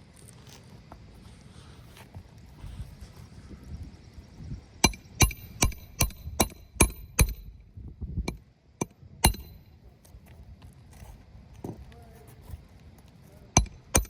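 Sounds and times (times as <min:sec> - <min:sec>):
hammer driving roofing nails: 0:13.6 - 0:14.0.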